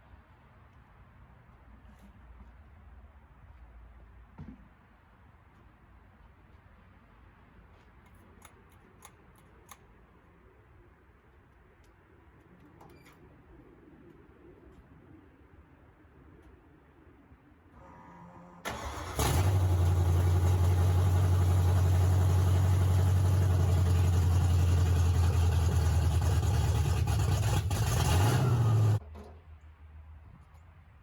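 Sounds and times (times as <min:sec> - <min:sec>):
engine fast idle: 0:18.6 - 0:29.0
engine cranking: 0:18.7 - 0:29.0.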